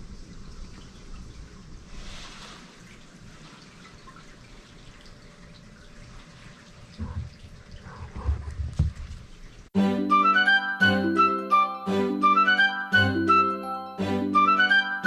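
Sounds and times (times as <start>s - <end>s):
small water drips: 0.0s - 9.7s.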